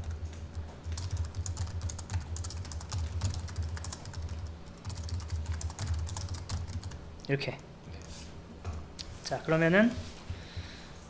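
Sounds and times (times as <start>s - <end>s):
fast typing on keyboard: 0.0s - 7.0s.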